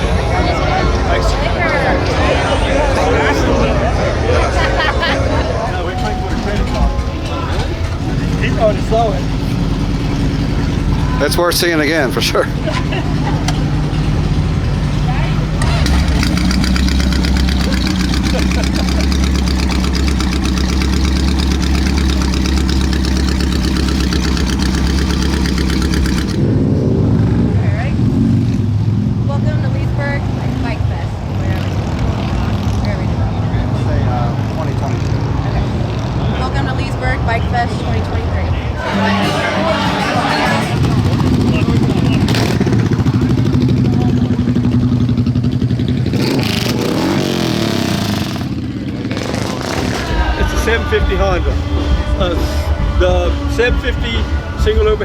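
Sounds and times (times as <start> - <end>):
motorcycle engine idling: 5.6 - 26.7, 32.3 - 55.0.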